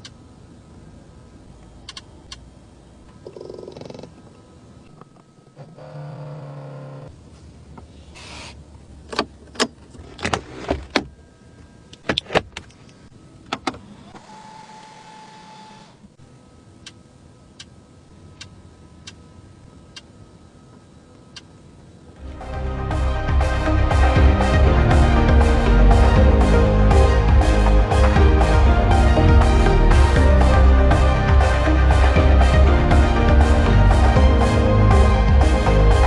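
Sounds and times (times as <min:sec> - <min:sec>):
steady tone: 0:22.2 - 0:36.0.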